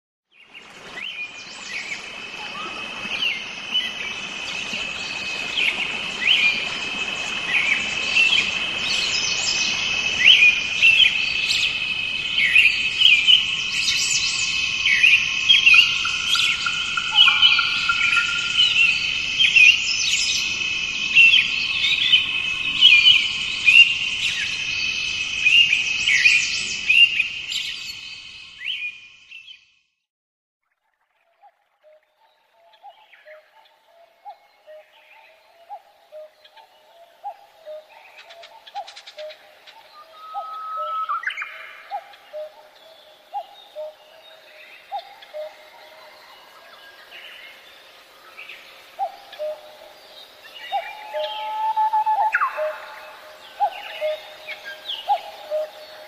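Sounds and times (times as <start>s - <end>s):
steady high bird trill: 5.2s - 28.1s
birds chirping and calling: 7.3s - 28.1s, 49.0s - 56.0s.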